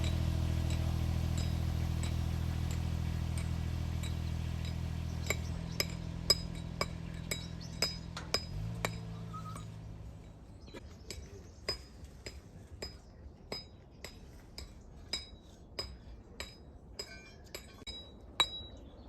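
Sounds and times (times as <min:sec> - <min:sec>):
low engine hum: 0:00.0 - 0:11.8
sharp metallic clinks: 0:00.0 - 0:19.0.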